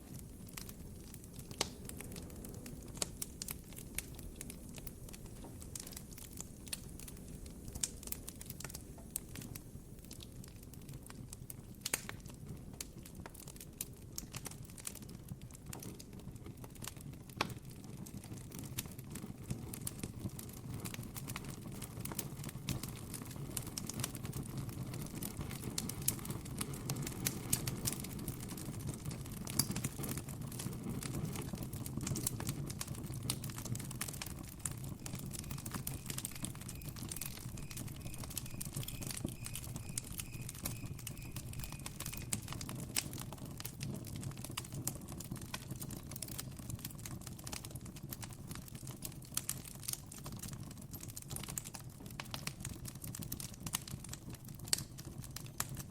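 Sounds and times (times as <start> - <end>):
burning wood popping: 0.0 - 55.9
campfire crackling: 0.0 - 55.9
cricket chirping: 35.5 - 42.1.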